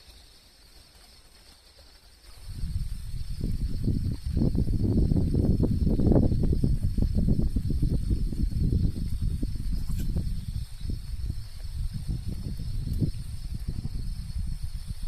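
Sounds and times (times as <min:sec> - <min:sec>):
rustling and crackling: 0:00.0 - 0:04.8
high insect drone: 0:00.0 - 0:15.0.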